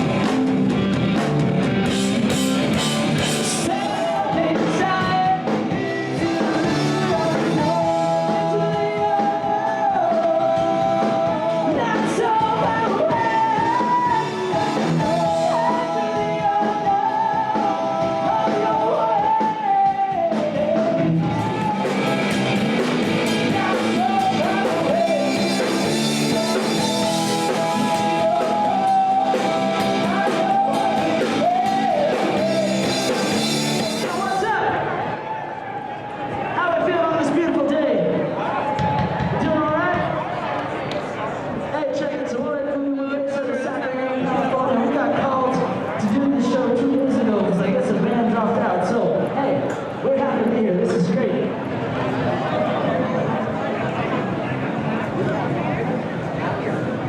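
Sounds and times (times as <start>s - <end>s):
rock and roll band playing: 0.0s - 35.4s
person singing: 1.8s - 34.9s.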